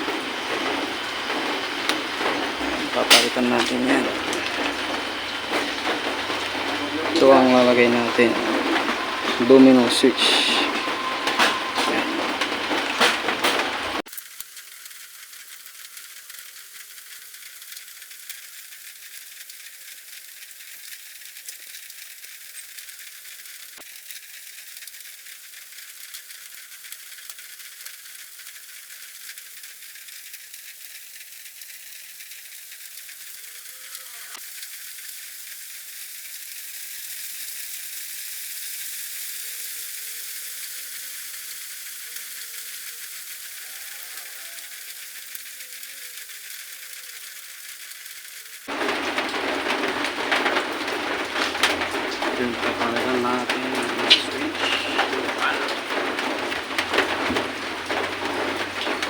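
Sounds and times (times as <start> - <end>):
steady high hiss: 0.0 - 14.1, 30.9 - 59.0.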